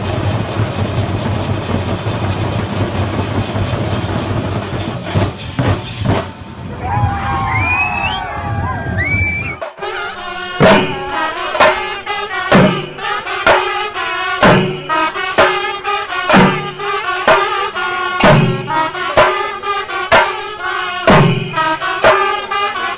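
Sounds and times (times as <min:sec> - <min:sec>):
loud percussion strikes: 0:00.0 - 0:22.7.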